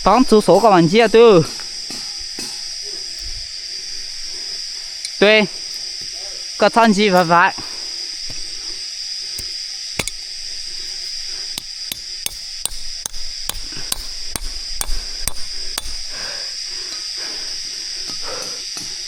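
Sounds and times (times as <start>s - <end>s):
sharp striking knocks: 9.4s - 10.3s, 11.6s - 16.2s.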